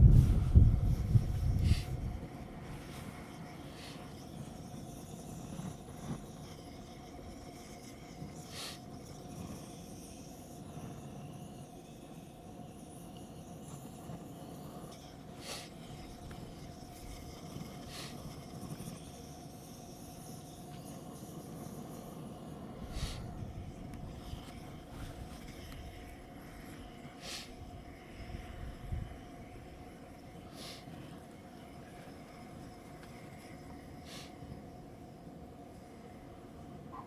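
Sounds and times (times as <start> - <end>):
low steady rumble: 0.0 - 3.9.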